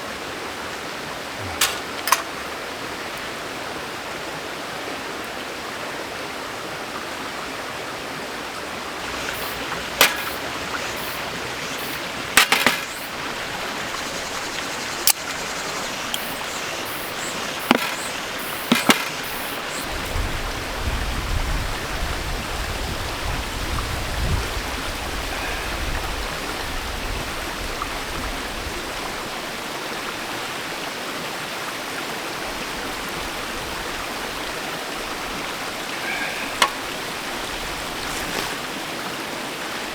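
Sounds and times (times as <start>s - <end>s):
mountain stream rushing: 0.0s - 26.8s
sharp clicks and knocks: 1.5s - 2.4s, 9.0s - 13.2s, 15.0s - 19.8s.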